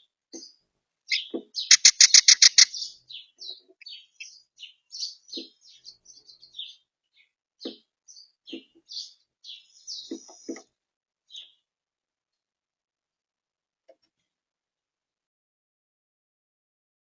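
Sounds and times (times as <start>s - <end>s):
songbirds chirping: 0.0s - 12.4s.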